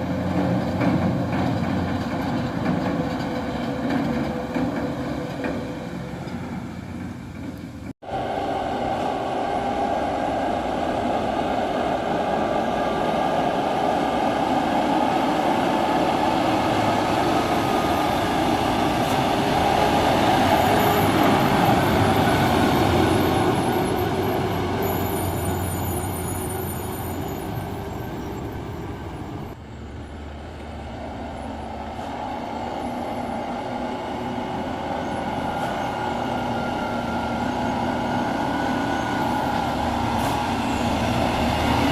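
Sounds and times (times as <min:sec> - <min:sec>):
dump truck driving past: 0:00.0 - 0:41.9.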